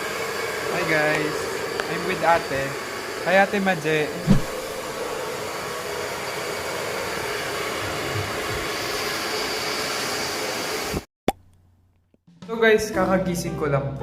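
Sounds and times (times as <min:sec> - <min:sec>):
steady rushing noise: 0:01.9 - 0:05.4.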